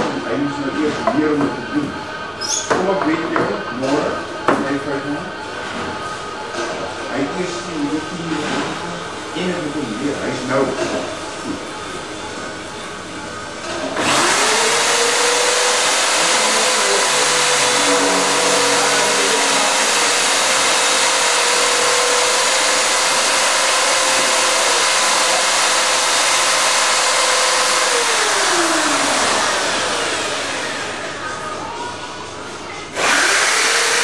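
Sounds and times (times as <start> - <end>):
drill motors spinning: 14.0 - 31.3, 32.9 - 34.0.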